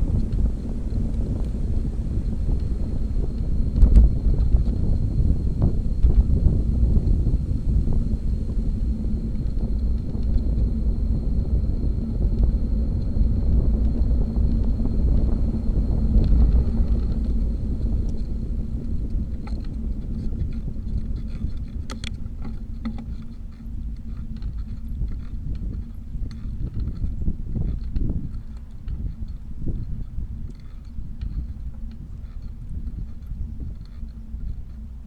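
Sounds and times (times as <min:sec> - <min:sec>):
road rumble: 0:00.0 - 0:20.3
wind buffeting microphone: 0:00.0 - 0:35.0.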